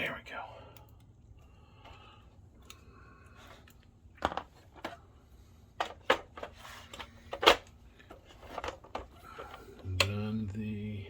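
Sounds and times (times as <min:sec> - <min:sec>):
plastic parts clicking and knocking: 0:03.4 - 0:05.0, 0:05.7 - 0:10.2.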